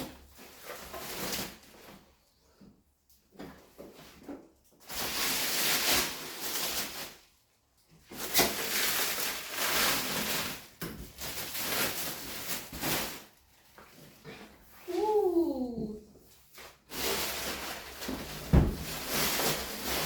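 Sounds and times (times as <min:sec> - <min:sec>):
plastic wrap crinkling and tearing: 0:04.8 - 0:07.5, 0:08.1 - 0:13.8, 0:16.5 - 0:20.0.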